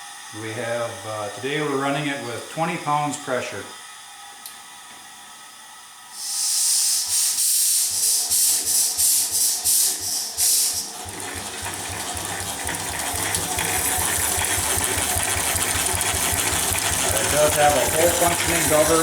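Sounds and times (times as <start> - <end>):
loud hiss of air: 6.1 - 10.9
steam engine exhaust chuffs: 6.1 - 19.0.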